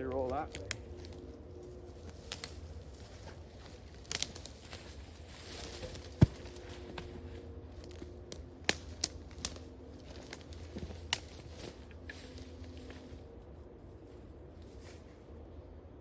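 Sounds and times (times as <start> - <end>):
logs knocking tumbling downhill: 4.2 - 7.2.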